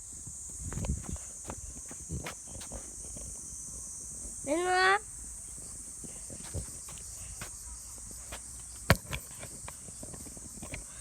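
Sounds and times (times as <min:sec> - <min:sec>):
insects chirping: 0:00.0 - 0:11.0
soft footsteps: 0:00.5 - 0:03.4, 0:06.0 - 0:10.8.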